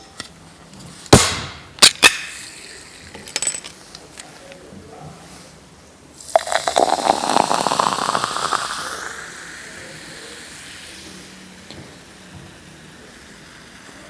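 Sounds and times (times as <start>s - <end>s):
food sizzling in hot oil: 6.2s - 14.0s.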